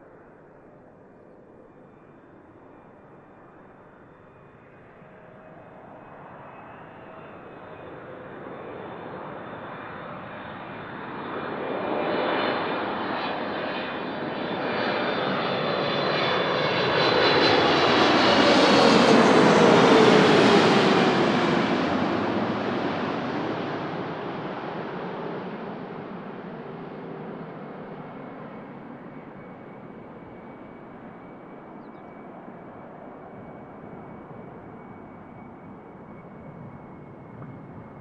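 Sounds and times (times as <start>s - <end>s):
jet airliner passing: 1.2s - 38.0s.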